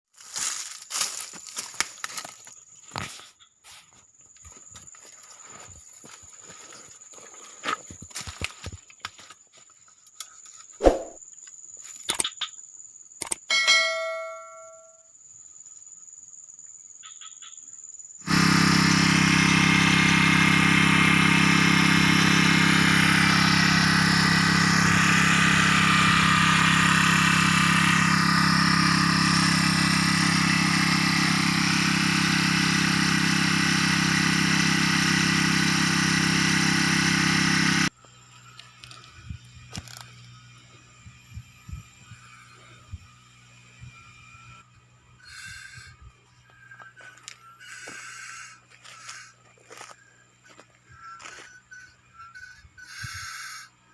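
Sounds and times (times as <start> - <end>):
short ringing tone: 13.5 - 15.1
small four-stroke engine running: 18.2 - 53.9.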